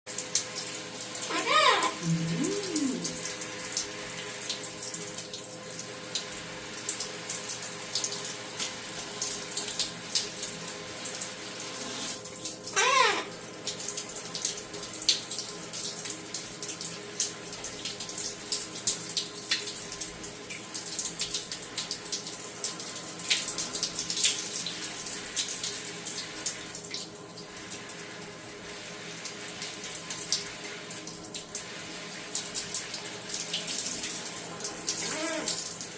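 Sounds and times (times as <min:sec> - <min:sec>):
tap water running: 0:00.1 - 0:35.9
short bird call: 0:01.3 - 0:03.2.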